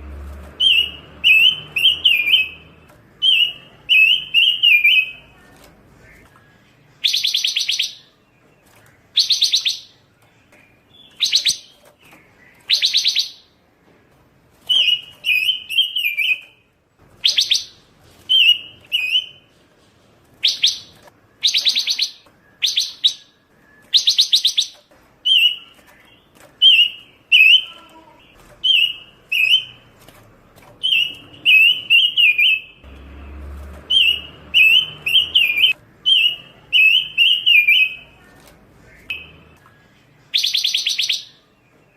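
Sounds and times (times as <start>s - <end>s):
songbird singing buzzy trills: 0.1s - 13.6s, 14.6s - 19.6s, 20.4s - 41.9s.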